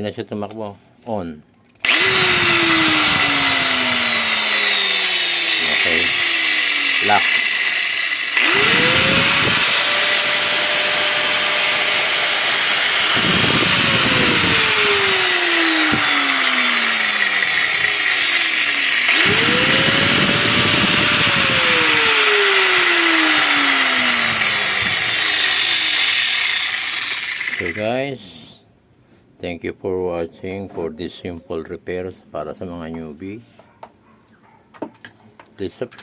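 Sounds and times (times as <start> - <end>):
grinder motor whining: 1.8 - 28.0.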